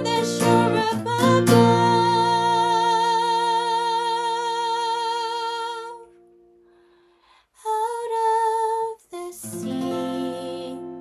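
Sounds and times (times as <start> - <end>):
acoustic guitar chord ringing: 0.0 - 4.6, 9.5 - 11.0
woman singing with vibrato: 0.0 - 6.2, 7.6 - 11.0.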